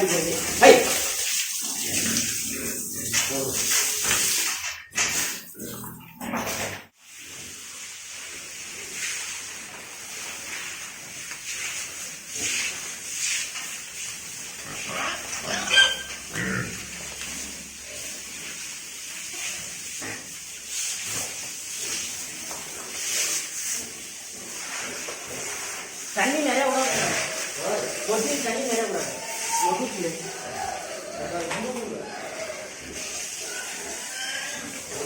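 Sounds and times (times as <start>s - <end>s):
water spray hiss: 0.0s - 5.6s, 7.0s - 35.0s
pigs grunting and squealing: 0.0s - 6.9s, 14.4s - 18.5s, 23.1s - 35.0s.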